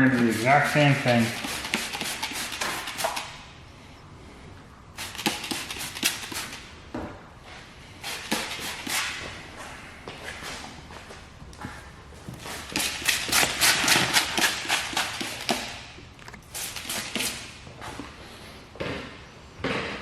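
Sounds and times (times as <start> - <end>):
spray bottle spritzes: 5.0 - 6.6.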